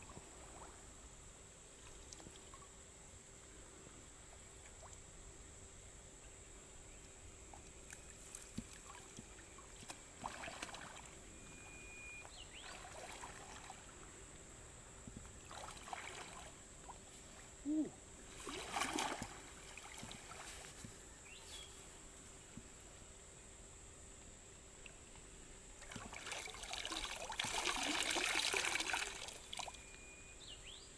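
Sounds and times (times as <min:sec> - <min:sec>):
water sloshing and trickling: 0:07.4 - 0:17.6, 0:18.2 - 0:22.8, 0:24.8 - 0:30.2.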